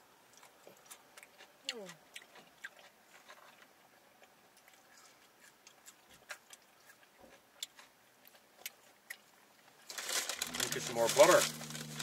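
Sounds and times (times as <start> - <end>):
mouth clicks and smacks chewing: 0.3 - 9.8.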